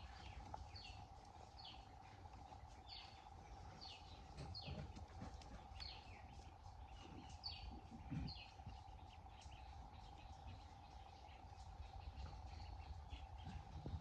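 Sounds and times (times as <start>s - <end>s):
bird chirps: 0.0s - 14.0s
faint hum: 0.0s - 14.0s.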